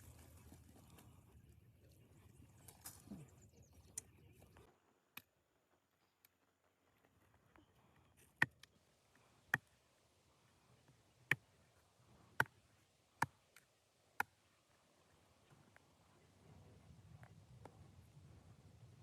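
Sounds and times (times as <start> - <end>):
faint low rumble: 14.8 - 19.0.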